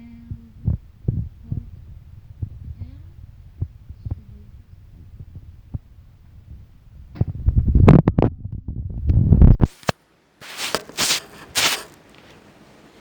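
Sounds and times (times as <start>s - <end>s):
low throbbing rumble: 0.0s - 9.4s.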